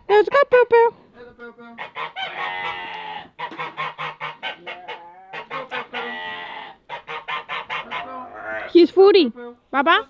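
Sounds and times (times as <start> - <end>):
goose honking: 1.8 - 8.8.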